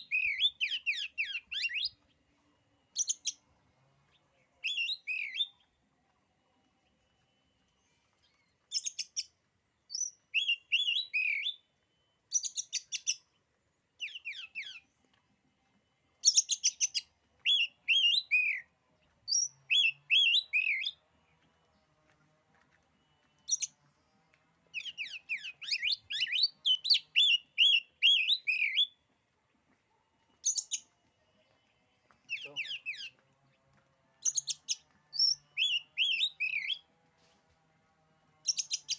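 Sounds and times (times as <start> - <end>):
songbird singing clicks and whistles: 0.0 - 2.2, 8.2 - 11.6, 12.3 - 13.4, 16.2 - 18.7, 19.3 - 21.0, 23.1 - 23.8, 24.7 - 29.0, 30.4 - 30.9, 34.2 - 36.8, 38.4 - 38.9.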